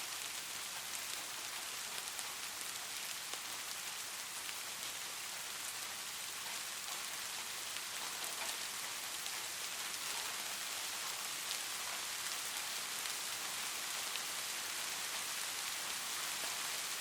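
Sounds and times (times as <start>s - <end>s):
light rain hissing: 0.0s - 17.0s
raindrops tapping on a surface: 6.4s - 15.4s.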